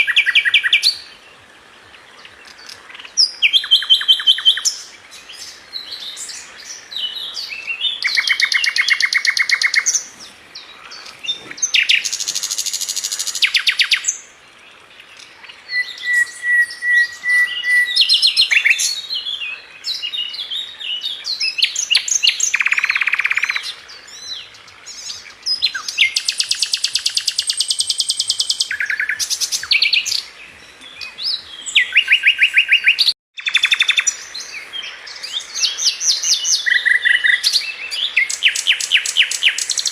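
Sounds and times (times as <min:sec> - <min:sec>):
bird chirps: 0:15.2 - 0:39.9
thin bird whistle: 0:15.7 - 0:18.8.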